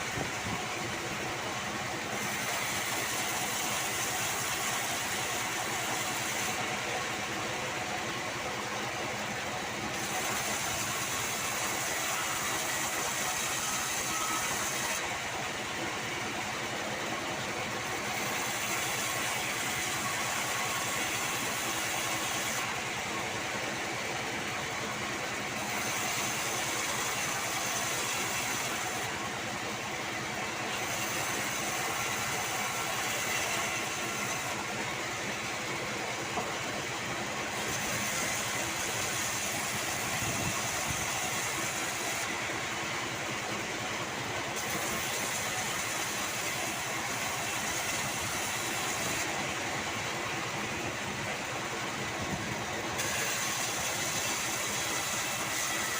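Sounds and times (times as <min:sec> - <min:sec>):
band sawmill sawing wood: 0:00.0 - 0:55.9.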